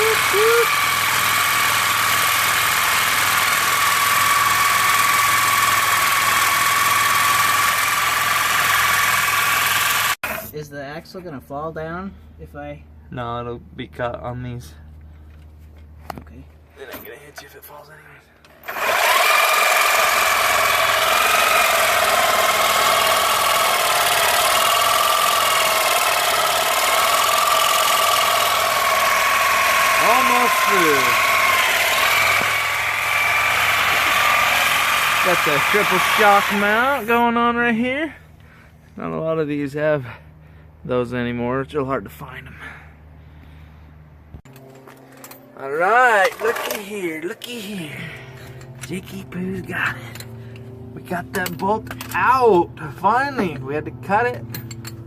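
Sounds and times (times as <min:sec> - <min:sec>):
power cutting tool cutting steel: 0:00.0 - 0:10.5, 0:18.6 - 0:37.1, 0:46.1 - 0:47.2.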